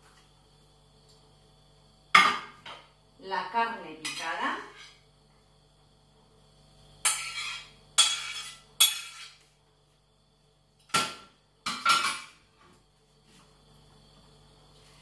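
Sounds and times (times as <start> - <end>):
metal utensil scraping dishes: 7.1 - 9.4.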